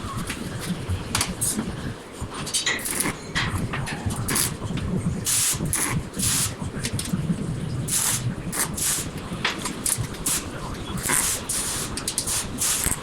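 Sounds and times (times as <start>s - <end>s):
welding arc crackling: 2.8s - 7.2s, 7.8s - 13.0s.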